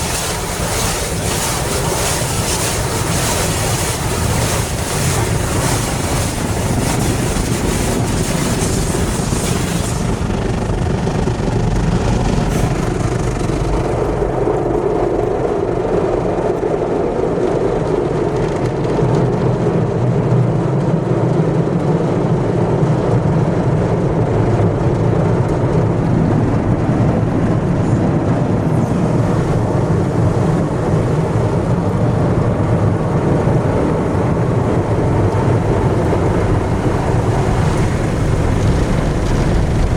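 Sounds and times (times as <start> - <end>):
water spray hissing: 0.0 - 10.4, 28.6 - 39.9
car wash machinery rumbling: 0.0 - 39.9.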